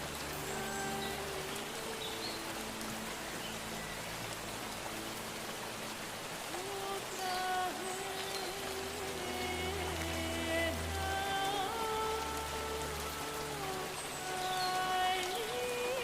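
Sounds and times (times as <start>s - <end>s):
soft background music: 0.0s - 16.0s
steady rain falling: 0.0s - 16.0s.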